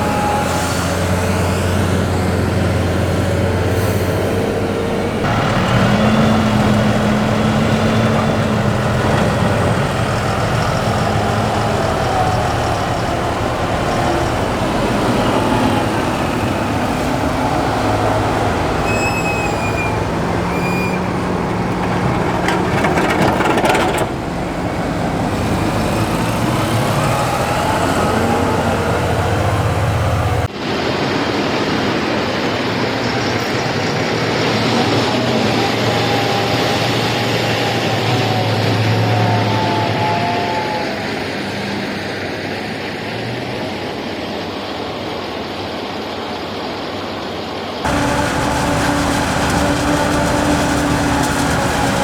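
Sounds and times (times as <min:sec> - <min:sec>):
diesel farm machinery running: 0:00.0 - 0:30.5, 0:47.8 - 0:52.0
short high squeaks: 0:10.1 - 0:24.3
forage harvester chopping corn: 0:47.9 - 0:52.0.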